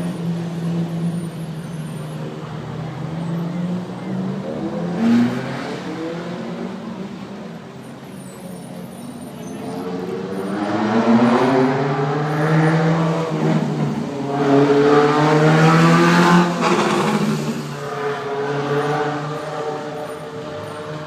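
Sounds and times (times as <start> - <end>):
racing car engines revving past: 2.4 - 7.6, 9.5 - 21.0.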